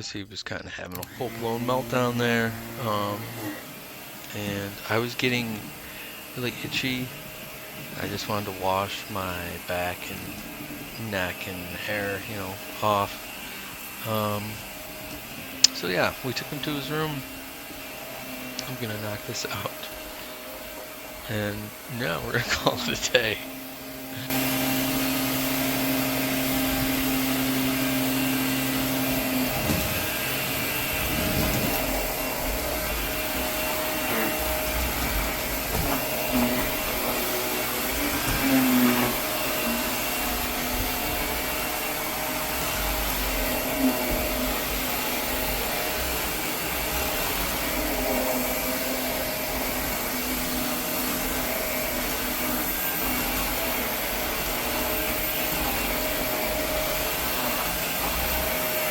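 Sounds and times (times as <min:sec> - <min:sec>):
vacuum cleaner running: 0:00.8 - 0:58.9.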